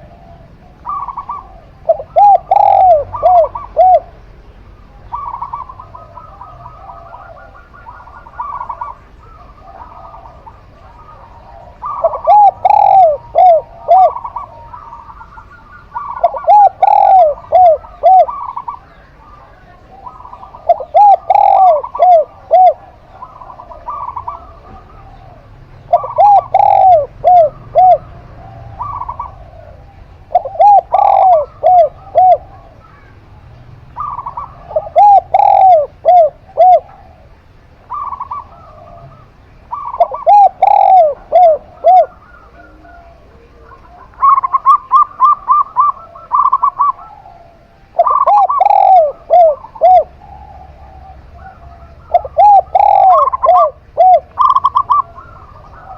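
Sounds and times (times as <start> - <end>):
doves cooing: 0.0 - 55.9.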